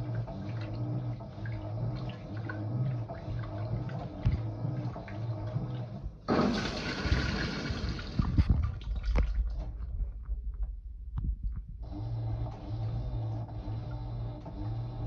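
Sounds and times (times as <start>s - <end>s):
water splashing in drum: 0.0s - 10.0s
water gurgling: 0.0s - 10.1s
pulsing motor hum: 0.0s - 15.0s.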